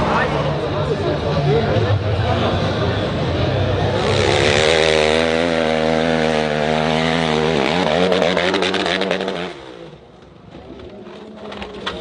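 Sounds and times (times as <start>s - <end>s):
dirt bike engine revving: 3.7s - 10.0s.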